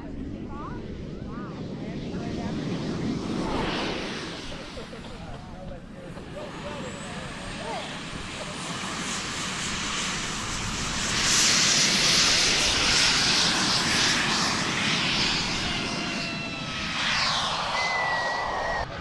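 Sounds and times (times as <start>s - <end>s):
model jet flying past: 0.0s - 19.0s
falling jet whine: 0.3s - 19.0s.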